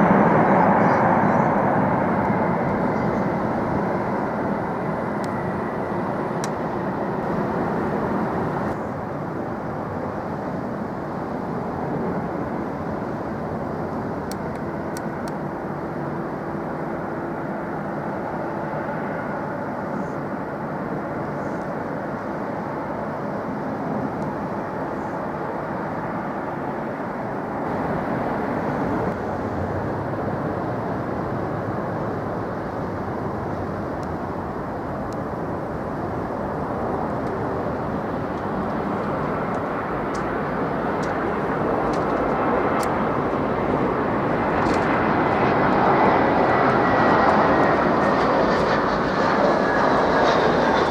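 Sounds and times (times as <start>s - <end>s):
jet engines rumbling: 0.0s - 50.9s
faint steady hum: 7.2s - 8.8s, 27.6s - 29.5s.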